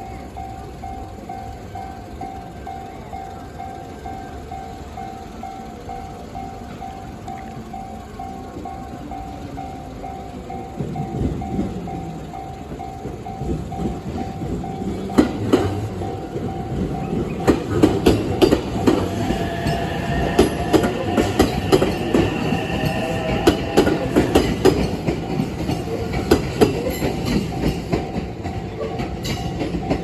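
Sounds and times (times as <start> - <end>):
steady high whine: 0.0 - 26.7
crossing warning bell ringing: 0.0 - 30.0
wheels clattering over rail joints: 9.7 - 30.0.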